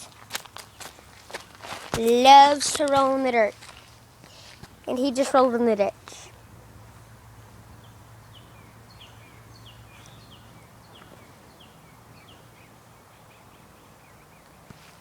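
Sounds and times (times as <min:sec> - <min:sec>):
faint outdoor background noise: 0:00.0 - 0:15.0
songbird chirping: 0:03.6 - 0:14.8.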